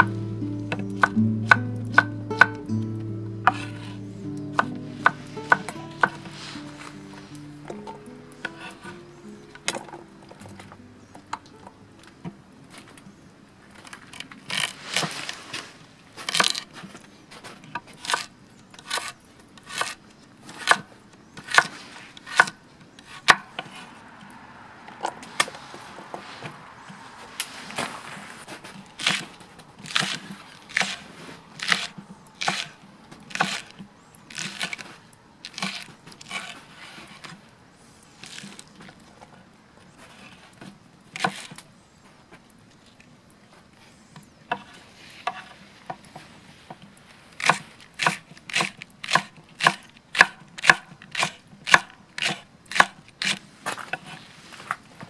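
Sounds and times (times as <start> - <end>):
axe chopping firewood: 0.0 - 2.8, 3.4 - 9.0, 16.3 - 16.7, 18.0 - 18.3, 18.9 - 19.1, 29.0 - 33.7, 47.4 - 54.1.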